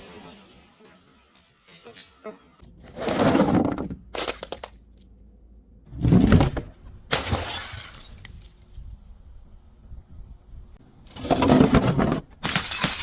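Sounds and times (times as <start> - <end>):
glass shattering: 7.1 - 8.4, 12.4 - 13.0
glass bottle crunching: 12.4 - 13.0
glass fragments tinkling: 12.5 - 13.0.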